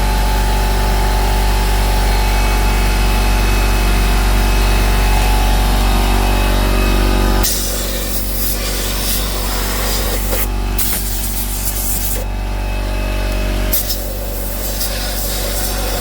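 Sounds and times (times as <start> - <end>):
compressed air hissing: 7.4 - 12.3, 13.7 - 16.0.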